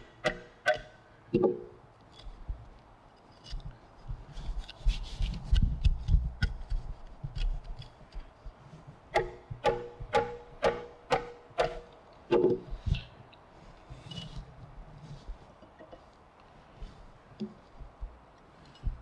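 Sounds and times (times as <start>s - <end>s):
chisel paring and scraping wood: 0.2s - 1.5s, 9.2s - 12.6s
mallet striking chisel: 0.2s - 1.6s, 9.2s - 12.6s.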